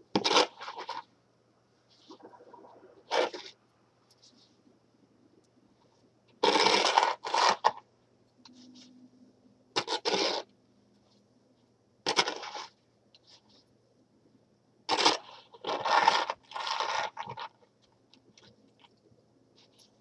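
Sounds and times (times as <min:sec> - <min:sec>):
snow shovel scraping snow: 0:09.8 - 0:10.4.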